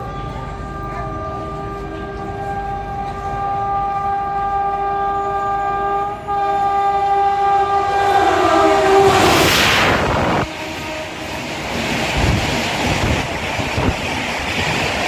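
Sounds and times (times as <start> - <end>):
train horn blast: 0.0 - 12.0.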